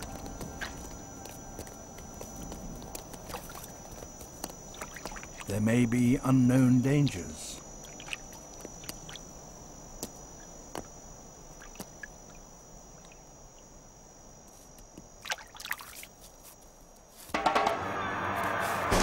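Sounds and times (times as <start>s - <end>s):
water drips: 3.2s - 5.5s, 7.8s - 9.2s
splashing: 4.7s - 5.5s, 7.8s - 9.2s, 15.2s - 16.1s.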